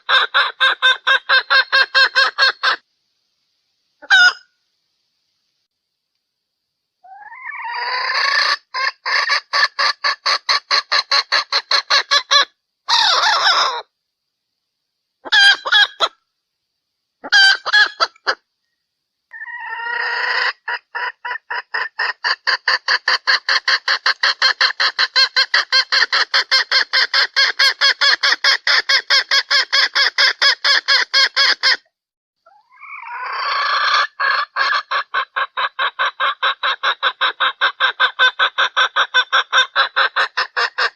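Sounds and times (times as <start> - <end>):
hen clucking rapidly: 0.0 - 2.8, 7.1 - 13.8, 15.2 - 16.1, 17.2 - 18.4, 19.3 - 31.8, 32.5 - 40.9.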